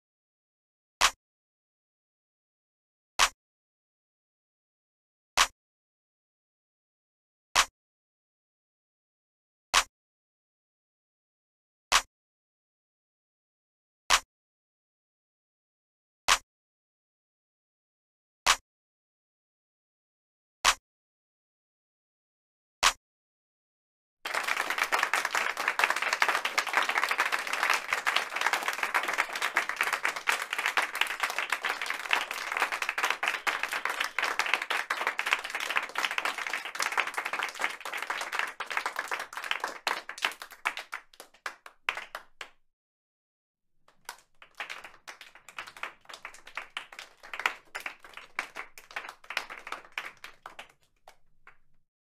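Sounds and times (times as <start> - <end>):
crowd applause: 24.3 - 42.5, 44.0 - 51.2.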